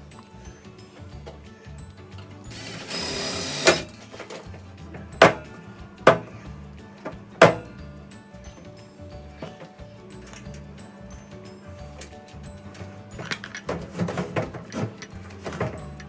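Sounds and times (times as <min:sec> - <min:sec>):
background music: 0:00.0 - 0:16.0
sharp knocks: 0:05.2 - 0:05.5, 0:07.4 - 0:07.7.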